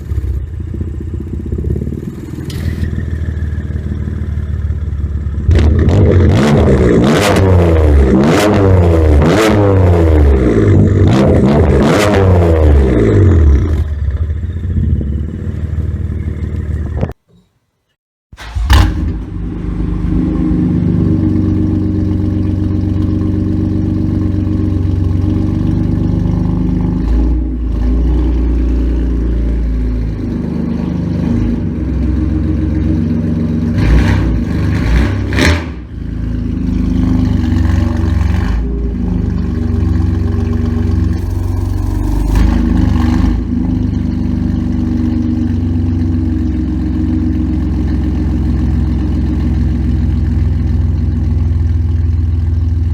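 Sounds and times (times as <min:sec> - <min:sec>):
car engine idling: 0:00.0 - 0:05.6, 0:18.4 - 0:26.9, 0:27.5 - 0:33.8, 0:35.8 - 0:52.9.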